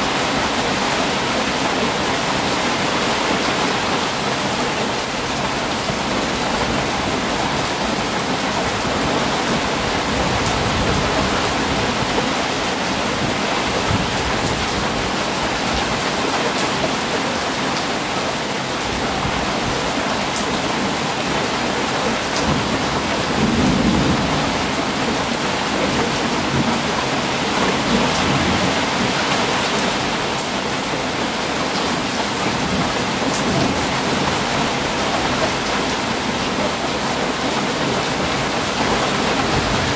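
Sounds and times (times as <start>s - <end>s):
heavy rain pouring: 0.0s - 39.9s
low rumble of thunder: 22.5s - 26.9s.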